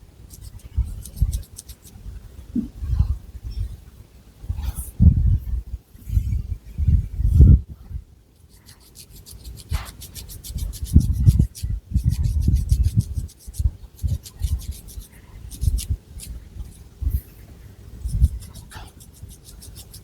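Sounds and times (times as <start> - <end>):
fingernails scratching hair and scalp: 0.3 - 2.0, 8.5 - 17.2, 18.0 - 20.0.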